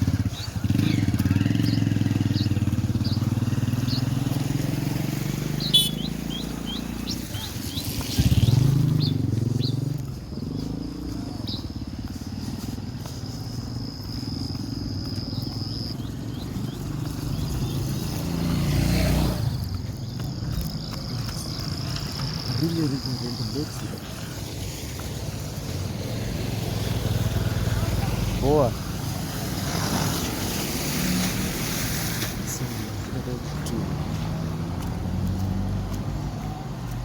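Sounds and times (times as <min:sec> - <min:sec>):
motor vehicles passing: 0:00.0 - 0:37.0
bird chirps: 0:00.1 - 0:12.2, 0:13.4 - 0:23.8
high insect trill: 0:01.4 - 0:34.4.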